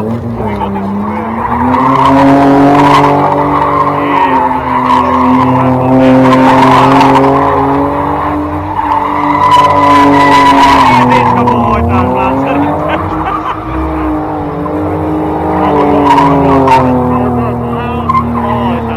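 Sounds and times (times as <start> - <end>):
car engine at high revs: 0.0 - 18.9
tyres squealing and skidding: 0.0 - 18.9.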